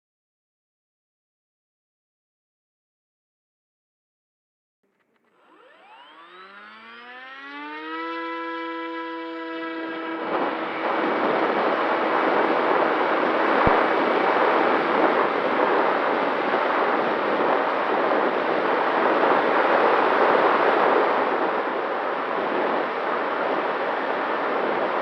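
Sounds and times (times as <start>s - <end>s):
faint motor tone: 4.9s - 15.6s
rushing wind noise: 9.0s - 25.0s.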